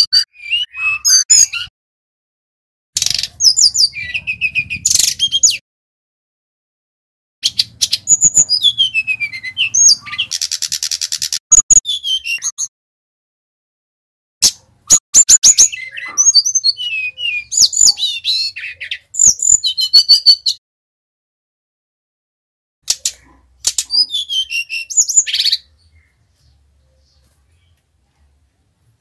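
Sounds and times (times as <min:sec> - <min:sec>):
bird singing whistled notes: 0:00.0 - 0:01.7, 0:03.0 - 0:05.6, 0:07.4 - 0:12.7, 0:14.9 - 0:20.6, 0:23.7 - 0:26.2
buzzy bird trill: 0:03.0 - 0:05.6, 0:07.4 - 0:12.7, 0:14.5 - 0:20.6.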